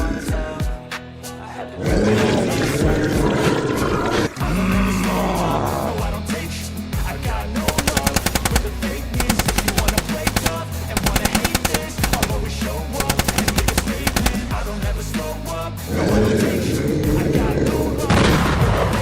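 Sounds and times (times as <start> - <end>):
hip-hop music with deep bass: 0.0 - 19.0
rapid rattling machine-gun hits: 7.6 - 14.6.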